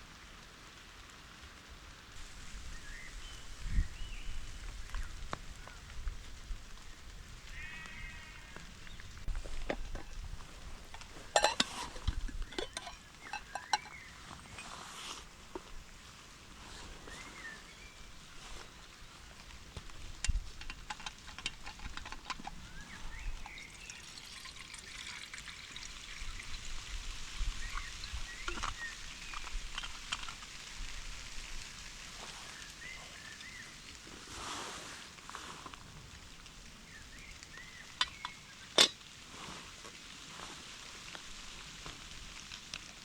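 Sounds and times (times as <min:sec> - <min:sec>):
rain patter: 0:00.0 - 0:43.0
camping gear rustling and knocking: 0:08.8 - 0:23.7, 0:27.7 - 0:31.2, 0:37.8 - 0:43.0.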